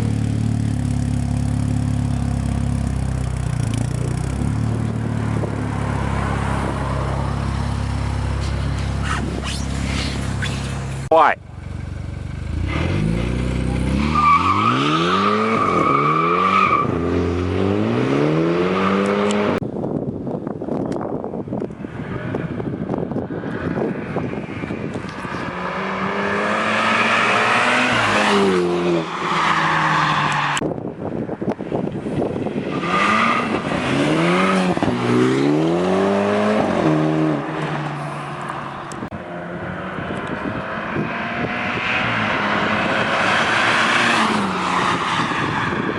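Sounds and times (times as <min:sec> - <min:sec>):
car engine revving: 0:32.8 - 0:38.2.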